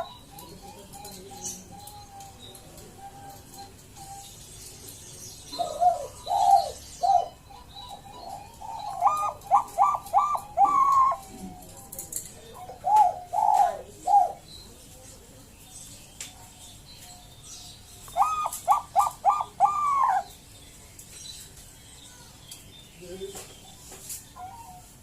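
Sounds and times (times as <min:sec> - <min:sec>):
dove cooing: 0:00.0 - 0:04.4, 0:05.5 - 0:14.5, 0:18.1 - 0:20.4, 0:24.4 - 0:25.0.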